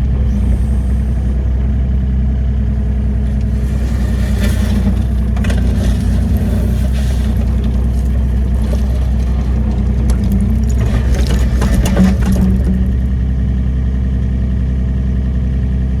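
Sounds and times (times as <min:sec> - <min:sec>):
excavator diesel engine running: 0:00.0 - 0:15.8
clattering and scraping: 0:02.7 - 0:13.6.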